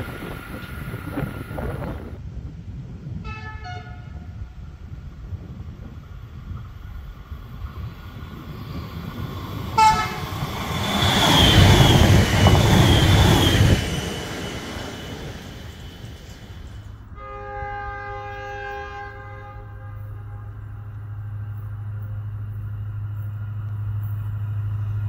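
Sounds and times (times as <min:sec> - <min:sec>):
electric train passing with whine: 0:00.0 - 0:25.0
wheels rumbling on rail: 0:00.0 - 0:25.0
train horn toot: 0:03.2 - 0:04.4, 0:09.8 - 0:10.4, 0:17.2 - 0:21.7.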